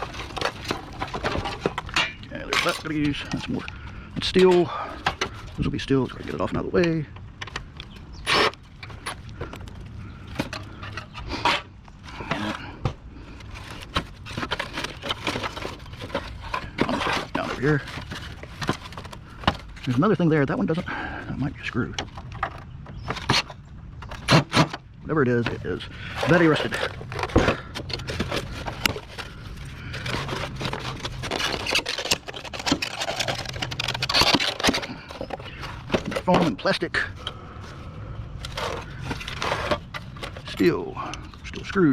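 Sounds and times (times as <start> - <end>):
debris scraping and clattering: 0.0 - 41.9
metal parts and tools clinking: 25.4 - 36.8.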